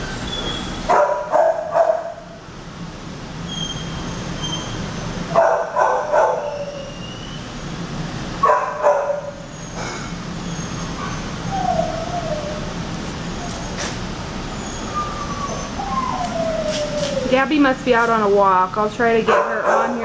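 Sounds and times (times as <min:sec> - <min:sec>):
dogs barking: 0:00.8 - 0:02.3, 0:05.3 - 0:06.9, 0:08.4 - 0:10.0, 0:19.2 - 0:20.0.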